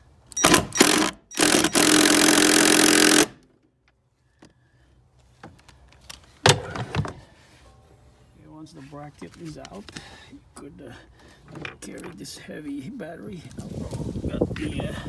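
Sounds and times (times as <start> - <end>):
power tool running: 0.4 - 3.4.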